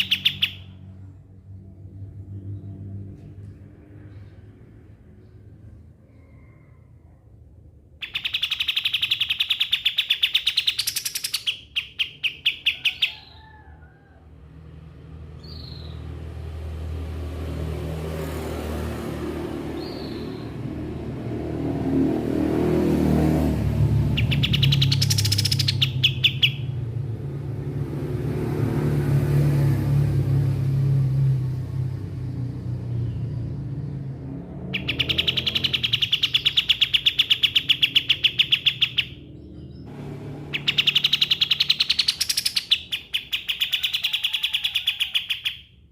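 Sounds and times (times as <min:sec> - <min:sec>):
songbird chattering trills: 0:00.0 - 0:00.6, 0:08.0 - 0:13.4, 0:24.2 - 0:26.7, 0:34.8 - 0:39.8, 0:40.5 - 0:45.6.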